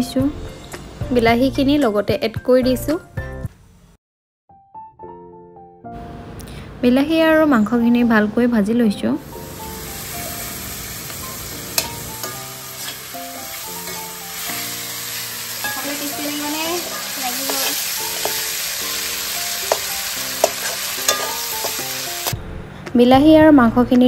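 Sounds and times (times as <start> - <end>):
food sizzling in hot oil: 9.2 - 22.4
spatula scraping a wok: 10.3 - 22.4
spatula clinking against pan: 11.7 - 13.0, 15.6 - 16.0, 19.6 - 21.8.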